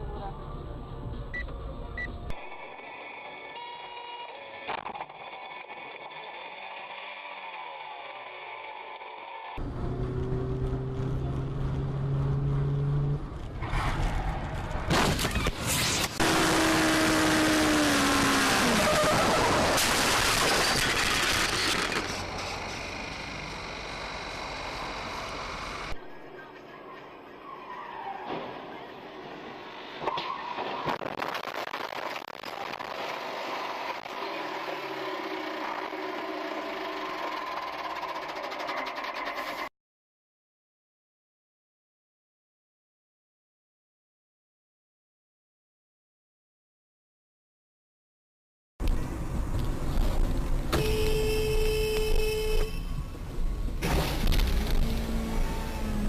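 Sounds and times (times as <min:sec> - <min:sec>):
road noise: 0:05.9 - 0:38.4, 0:48.8 - 0:56.0
car engine hum: 0:09.6 - 0:13.6, 0:21.8 - 0:26.5.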